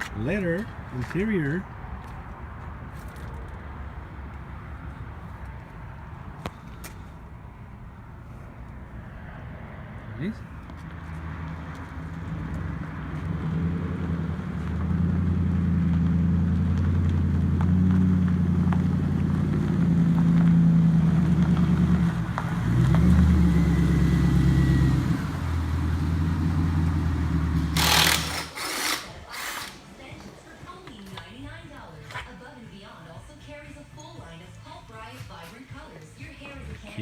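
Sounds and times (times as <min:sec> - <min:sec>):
car engine running: 0:10.5 - 0:32.3.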